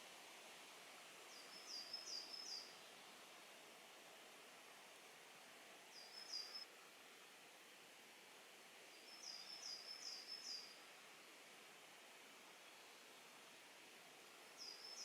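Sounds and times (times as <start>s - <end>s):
outdoor hiss: 0.0s - 15.0s
small bird calling: 1.3s - 2.7s, 5.9s - 6.6s, 9.0s - 10.8s, 14.6s - 15.0s.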